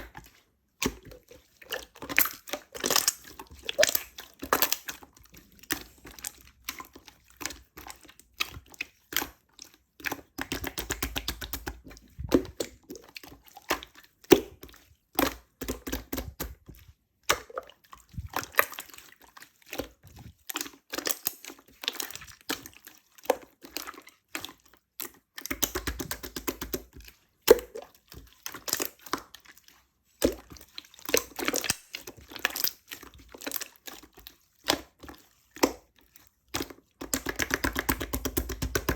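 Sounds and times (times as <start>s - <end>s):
slime squished by hand: 0.0s - 22.8s.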